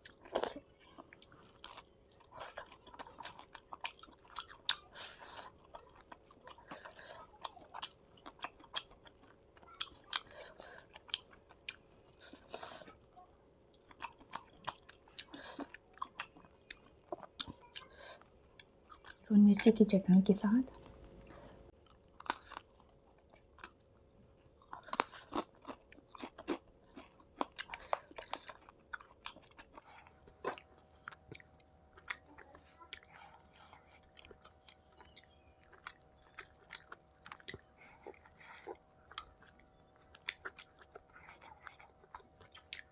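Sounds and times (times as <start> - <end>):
close chewing mouth sounds: 0.0 - 19.9, 20.7 - 42.9
lip and teeth clicks: 24.6 - 42.9
lip smacking: 29.7 - 42.9.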